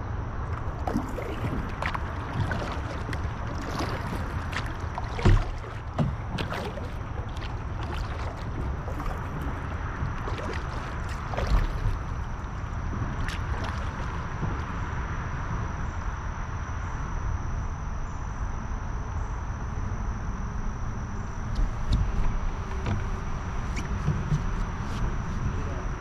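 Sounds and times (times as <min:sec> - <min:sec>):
creek water rushing and gurgling: 0:00.5 - 0:14.8
light knocks on kayak: 0:03.6 - 0:08.2.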